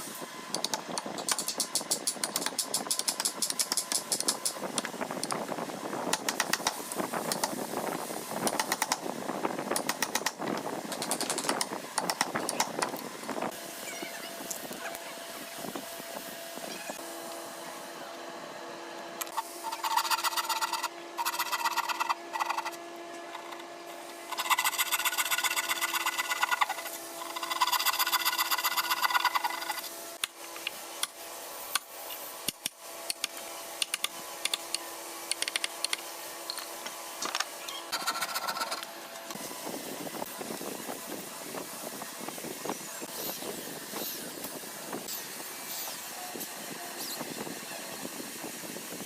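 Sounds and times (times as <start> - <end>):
machine hum: 15.1 - 30.3
power tool buzzing on wood: 19.2 - 30.0.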